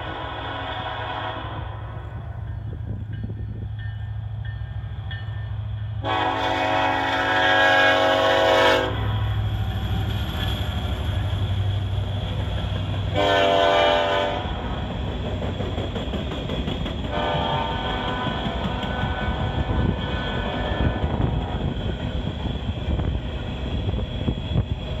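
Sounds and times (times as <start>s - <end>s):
locomotive air horn blasts: 0.0s - 2.0s, 6.0s - 9.3s, 13.1s - 14.6s, 17.1s - 21.6s
freight cars rumbling on rails: 0.0s - 25.0s.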